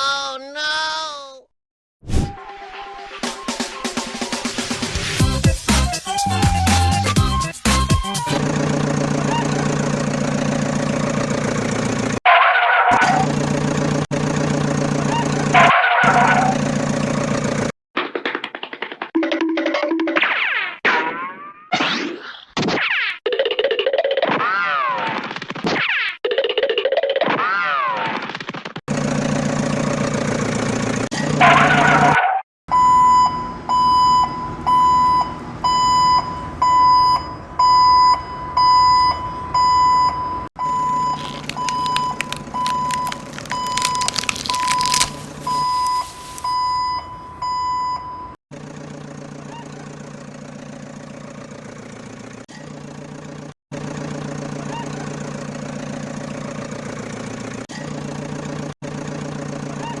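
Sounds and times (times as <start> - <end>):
engine idling: 8.2 - 12.2, 48.5 - 60.0
reversing alarm beeping: 32.7 - 48.4.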